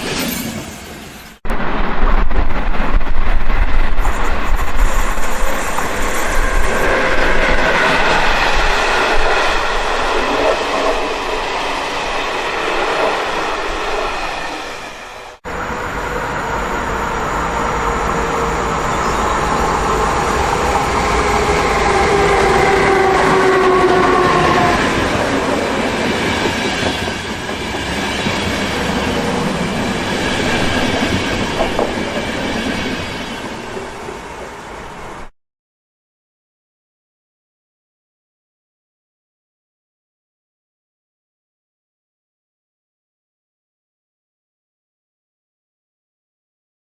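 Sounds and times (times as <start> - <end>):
train passing: 0.0 - 35.3
wheels clattering on rails: 18.6 - 34.1.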